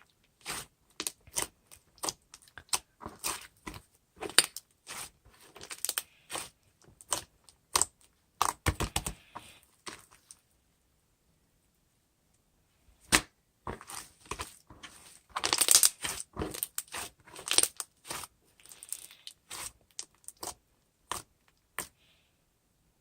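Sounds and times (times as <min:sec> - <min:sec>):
crinkling crackling noises: 0:13.7 - 0:20.6.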